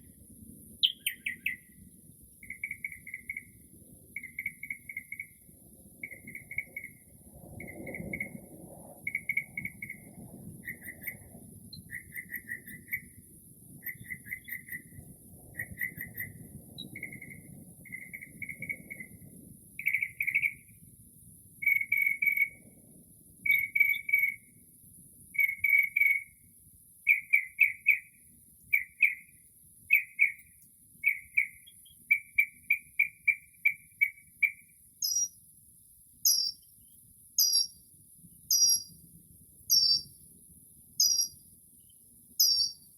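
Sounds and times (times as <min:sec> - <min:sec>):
insects chirring: 0:00.0 - 0:42.9
mockingbird singing: 0:00.8 - 0:01.7, 0:29.9 - 0:35.4, 0:36.2 - 0:36.6, 0:37.4 - 0:37.8, 0:38.5 - 0:38.9, 0:39.7 - 0:40.1, 0:41.0 - 0:41.4, 0:42.4 - 0:42.8.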